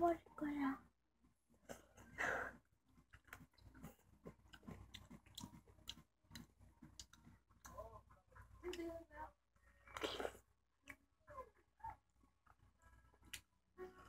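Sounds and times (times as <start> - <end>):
wet clicks of peach eating: 3.0 - 7.8.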